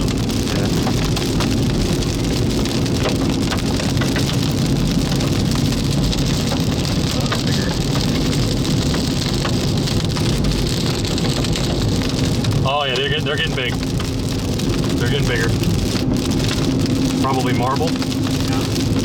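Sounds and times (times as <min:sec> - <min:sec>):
hailstones ticking on car: 0:00.0 - 0:19.0
heavy rain hiss: 0:00.0 - 0:19.0.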